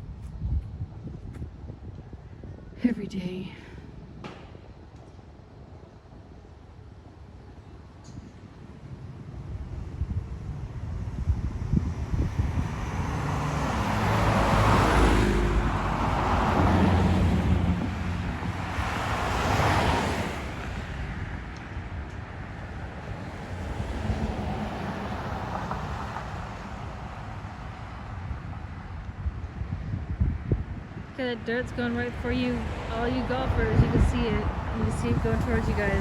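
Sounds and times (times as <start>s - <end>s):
wind rumble on microphone: 0.0s - 36.0s
cars whooshing past: 11.0s - 36.0s.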